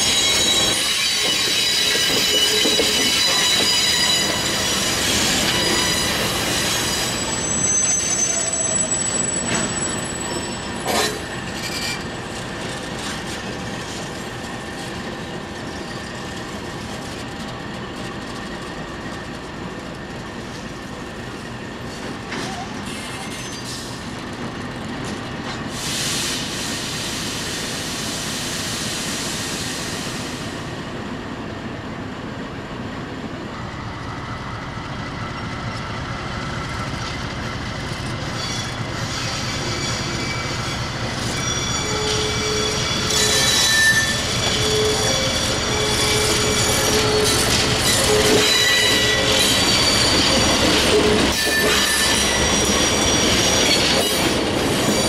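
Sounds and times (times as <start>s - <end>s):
high wheel squeal: 0.0s - 12.2s, 22.4s - 24.0s, 38.1s - 55.0s
diesel train engine rumble: 3.6s - 55.0s.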